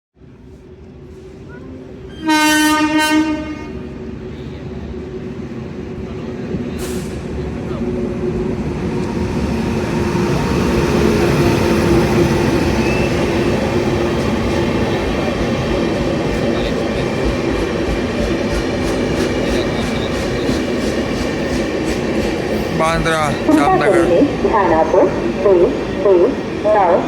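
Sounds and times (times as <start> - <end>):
passing train rumble: 0.2 - 27.0
wheels clickety-clack: 14.1 - 22.7.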